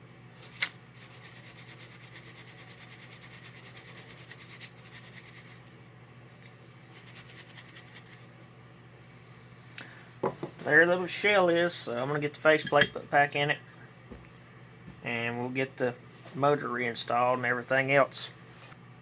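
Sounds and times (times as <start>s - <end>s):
brush rubbing polished shell: 0.4s - 5.6s, 6.9s - 8.3s.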